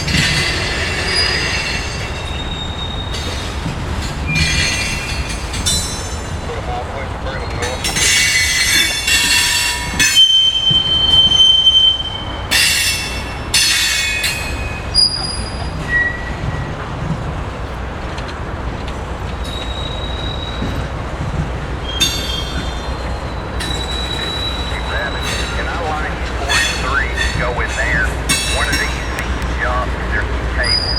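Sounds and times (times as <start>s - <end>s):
steel wheels squealing on rail: 0.0s - 17.8s, 19.3s - 30.9s
train rumbling past: 0.0s - 30.9s.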